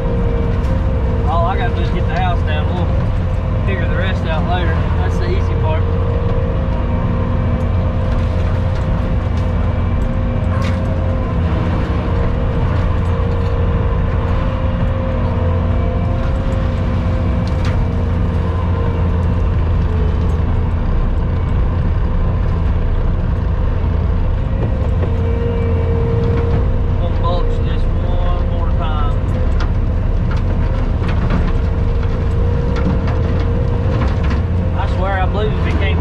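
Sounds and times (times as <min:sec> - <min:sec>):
skid steer engine running: 0:00.0 - 0:36.0.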